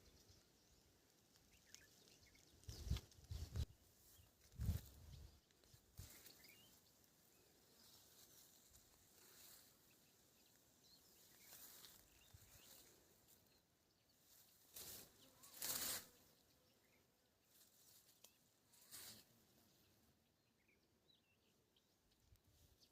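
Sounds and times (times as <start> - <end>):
faint bird chirps: 0.0 - 22.9
brief rustles: 14.7 - 16.2.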